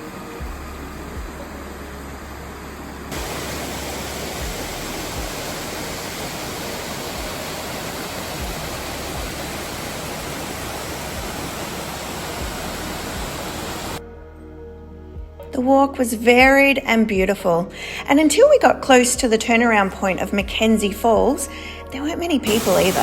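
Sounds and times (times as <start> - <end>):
waterfall rushing: 3.1 - 14.0, 22.5 - 23.0.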